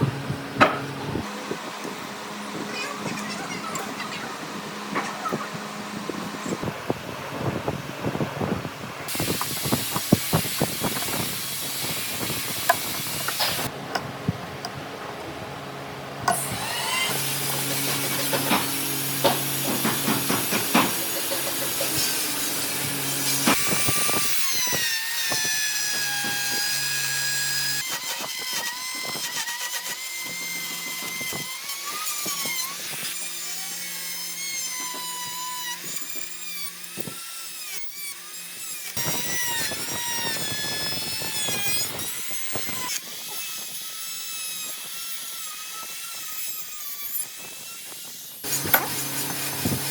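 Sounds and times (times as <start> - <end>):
power tools cutting wood: 0.0 - 8.2, 9.1 - 14.7, 16.2 - 49.9
sharp knocks: 0.6 - 0.9.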